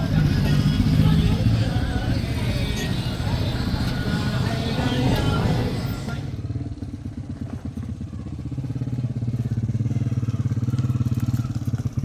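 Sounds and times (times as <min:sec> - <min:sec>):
loud mixed noise: 0:00.0 - 0:06.4
engine running with rapid beat: 0:00.0 - 0:12.0.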